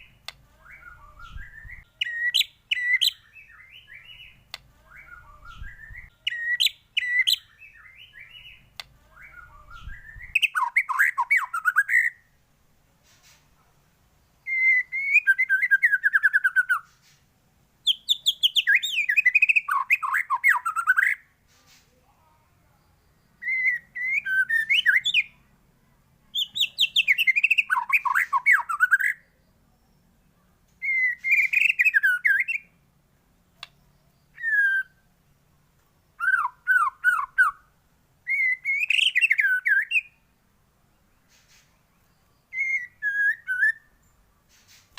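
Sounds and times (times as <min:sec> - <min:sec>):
bird singing whistled phrases: 0:00.0 - 0:12.3, 0:14.4 - 0:16.9, 0:17.8 - 0:21.2, 0:23.4 - 0:25.4, 0:26.3 - 0:30.0, 0:30.8 - 0:32.7, 0:34.2 - 0:35.1, 0:36.2 - 0:40.2, 0:42.5 - 0:44.2.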